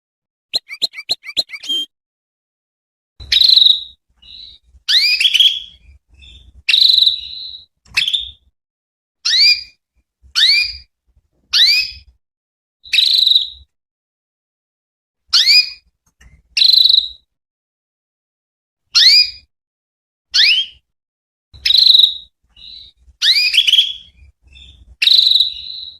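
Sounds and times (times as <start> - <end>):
canary chirping: 0.5 - 1.9, 3.2 - 8.4, 10.4 - 10.9, 21.6 - 25.9.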